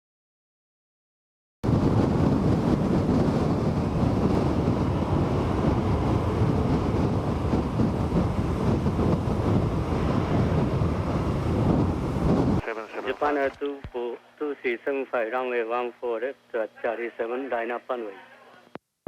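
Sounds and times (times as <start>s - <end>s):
strong wind buffeting microphone: 1.6s - 13.5s.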